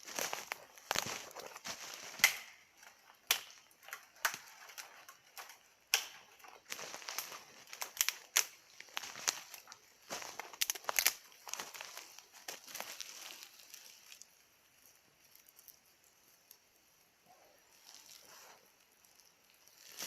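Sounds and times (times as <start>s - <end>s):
campfire crackling and popping: 0.0s - 17.1s
soft hiss of fire: 6.6s - 20.0s.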